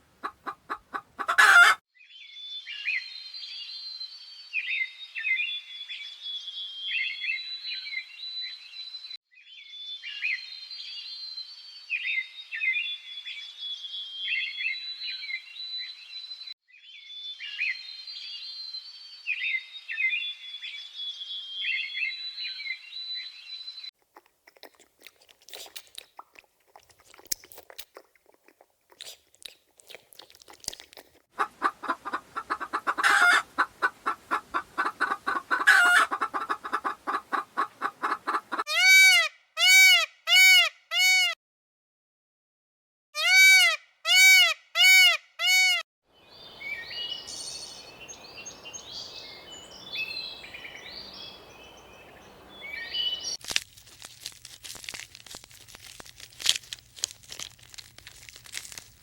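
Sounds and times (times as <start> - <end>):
loud poultry calls: 0.0 - 1.8, 31.4 - 41.4, 43.2 - 45.8
poultry clucking: 0.0 - 1.8, 30.8 - 39.1
high chirping: 46.4 - 53.4.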